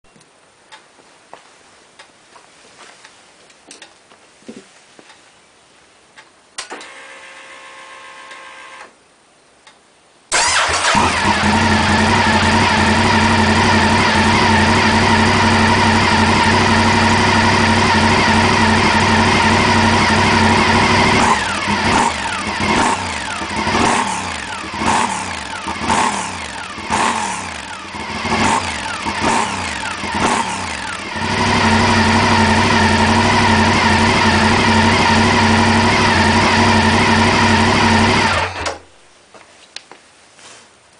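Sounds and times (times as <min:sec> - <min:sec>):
electric starter whine: 0:06.6 - 0:09.0, 0:10.3 - 0:38.8
motorcycle engine idling and revving: 0:10.4 - 0:38.7.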